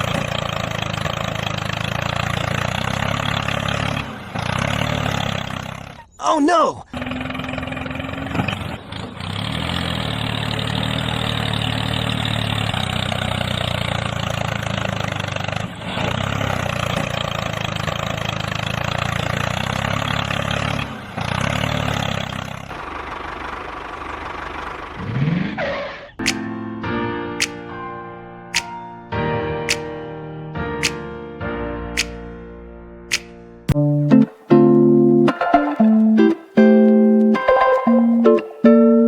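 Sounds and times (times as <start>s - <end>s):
engine running with low hum: 0.0s - 6.2s, 7.0s - 25.6s.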